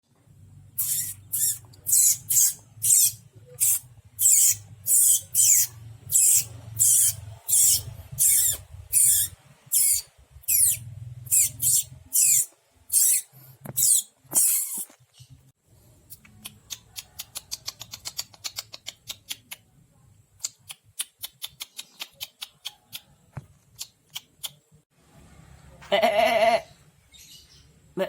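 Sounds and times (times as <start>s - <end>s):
person imitating animal squeaks: 0.8s - 14.9s.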